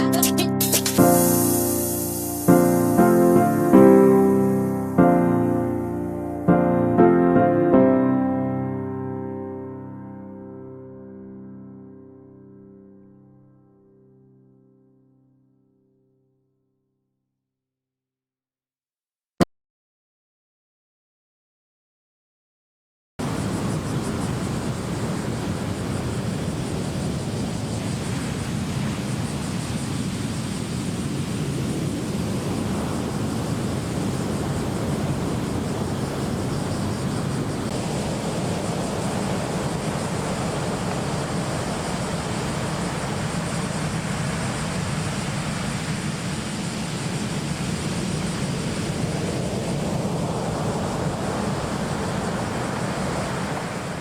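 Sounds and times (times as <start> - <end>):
wind: 0.0 - 7.0, 23.2 - 54.0
surf rushing: 0.0 - 7.9, 23.2 - 54.0.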